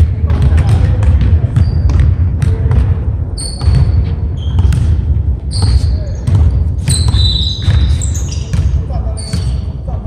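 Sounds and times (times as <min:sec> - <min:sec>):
short high squeaks: 0:06.9 - 0:08.5.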